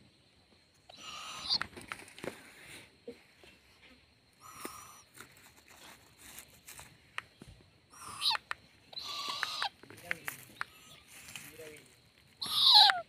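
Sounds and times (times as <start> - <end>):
young owl screech calls: 0.9 - 1.7, 4.4 - 5.2, 7.9 - 9.8, 10.5 - 11.5, 12.3 - 13.0
sharp clicks: 8.3 - 10.8.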